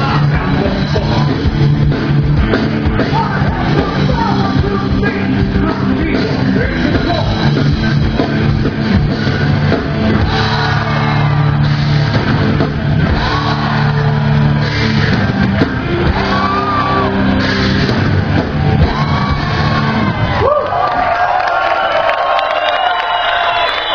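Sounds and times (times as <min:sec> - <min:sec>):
singer shouting and singing: 0:00.0 - 0:01.5, 0:02.9 - 0:07.6
rock band playing loud: 0:00.0 - 0:21.4.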